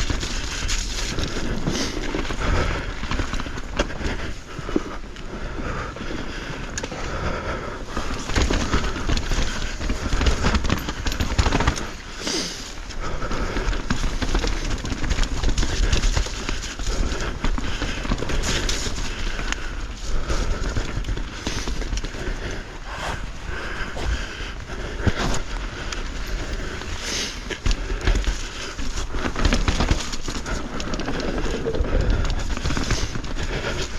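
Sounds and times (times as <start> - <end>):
bike tyres rolling over dirt: 0.0 - 33.9
chain and frame rattling: 8.0 - 12.2, 20.9 - 30.4
wind rumbling on microphone: 12.9 - 33.9.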